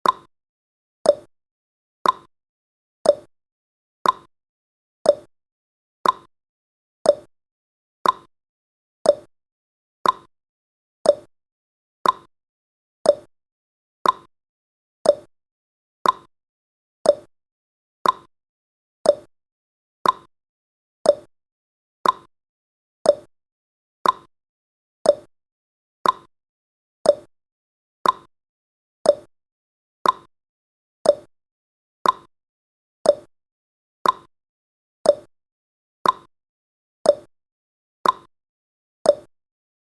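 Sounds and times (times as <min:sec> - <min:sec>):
clock ticking: 0:02.0 - 0:02.3, 0:04.0 - 0:04.3, 0:06.0 - 0:06.3, 0:08.0 - 0:08.3, 0:10.0 - 0:10.3, 0:12.0 - 0:12.3, 0:14.0 - 0:14.3, 0:15.1 - 0:15.3, 0:16.0 - 0:16.3, 0:18.0 - 0:18.3, 0:20.0 - 0:20.3, 0:21.1 - 0:21.3, 0:22.0 - 0:22.3, 0:24.0 - 0:24.3, 0:26.0 - 0:26.3, 0:28.0 - 0:28.3, 0:29.1 - 0:29.3, 0:30.0 - 0:30.3, 0:31.1 - 0:31.3, 0:32.0 - 0:32.3, 0:33.1 - 0:33.3, 0:34.0 - 0:34.3, 0:35.1 - 0:35.3, 0:36.0 - 0:36.3, 0:38.0 - 0:38.3, 0:39.1 - 0:39.3.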